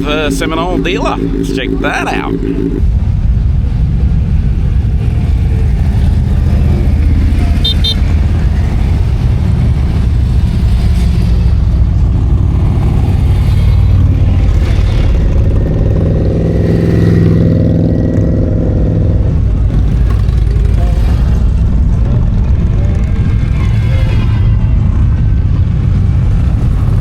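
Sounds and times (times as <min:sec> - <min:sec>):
motorcycle passing close: 0:00.0 - 0:02.8
motorcycle engines rumbling and revving: 0:00.0 - 0:27.0.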